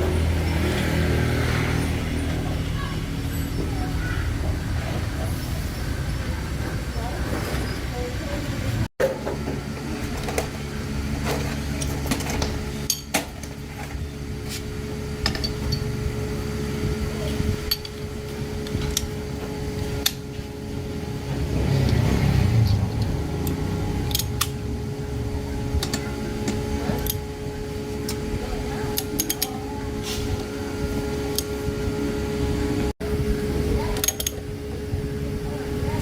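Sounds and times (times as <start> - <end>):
steady mechanical hum: 0.0 - 36.0
metal tools clinking: 15.2 - 15.9.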